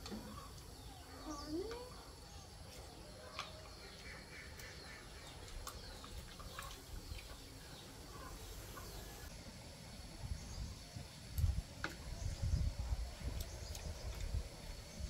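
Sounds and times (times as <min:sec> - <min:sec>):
faint bird chirps: 0:00.0 - 0:09.3.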